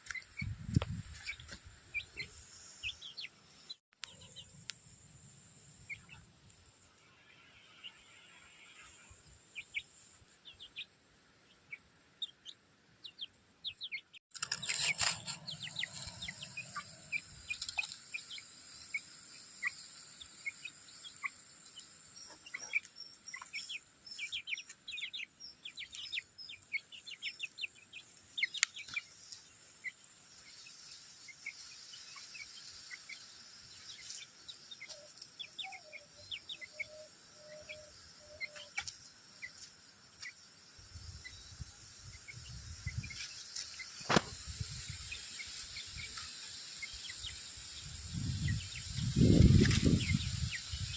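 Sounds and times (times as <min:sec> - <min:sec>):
chicks peeping: 0:11.5 - 0:40.4, 0:41.0 - 0:50.9.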